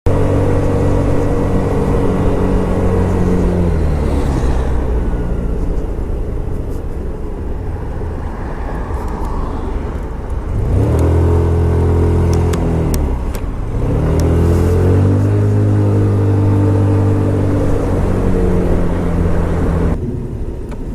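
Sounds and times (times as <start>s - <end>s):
wind and road noise: 0.0s - 20.9s
scooter engine running: 0.1s - 5.7s, 10.5s - 20.0s.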